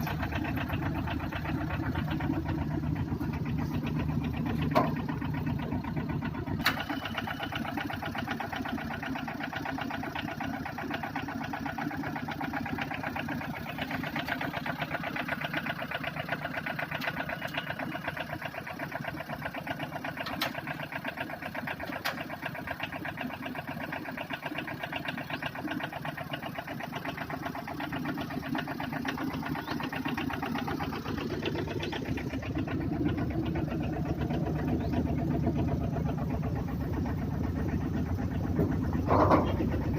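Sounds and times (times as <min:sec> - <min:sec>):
truck engine idling: 0:00.0 - 0:39.9.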